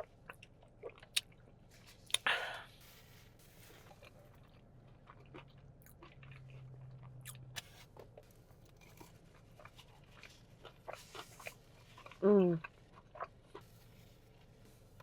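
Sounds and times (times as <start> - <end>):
chewing crispy fried chicken: 0.0 - 15.0.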